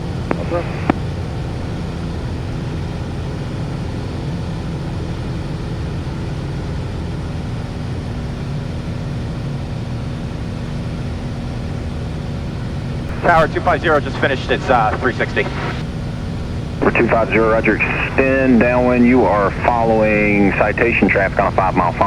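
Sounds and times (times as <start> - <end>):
aircraft engine and propeller droning: 0.0 - 22.0.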